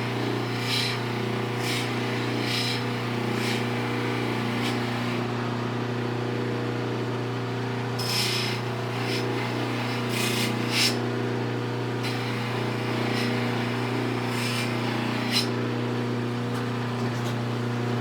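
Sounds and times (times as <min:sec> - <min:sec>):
electric motor humming: 0:00.0 - 0:18.0
metal hissing on buffing wheel: 0:08.0 - 0:11.0, 0:12.0 - 0:15.6.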